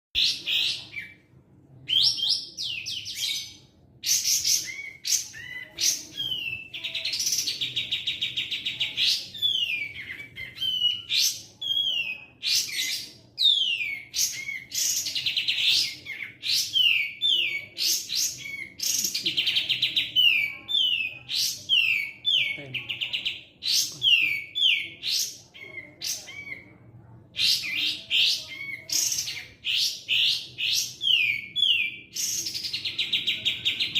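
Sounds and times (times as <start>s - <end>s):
songbird singing with trills: 1.9s - 26.7s, 27.4s - 33.9s.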